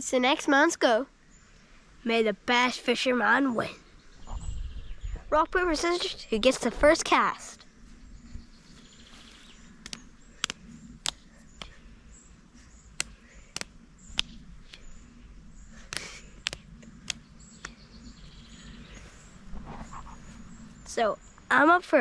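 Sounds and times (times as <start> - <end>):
faint outdoor background noise: 0.0 - 22.0
low hum: 3.7 - 21.7
sharp ticks: 9.8 - 11.8, 12.9 - 15.0, 15.8 - 17.8.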